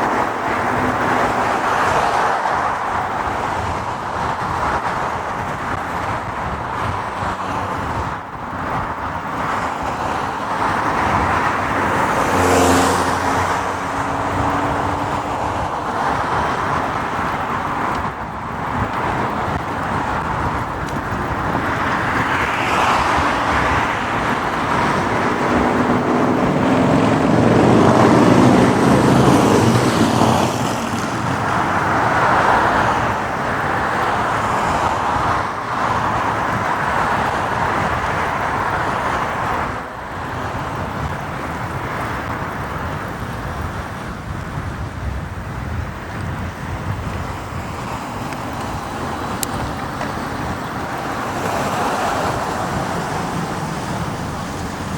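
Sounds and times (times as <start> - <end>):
road and traffic noise: 0.0 - 54.9
motorcycle engine: 20.5 - 31.8.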